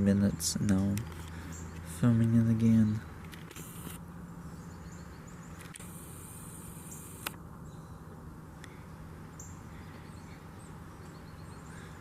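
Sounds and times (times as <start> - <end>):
steady low hum: 0.0 - 12.0
sharp click: 6.9 - 7.4.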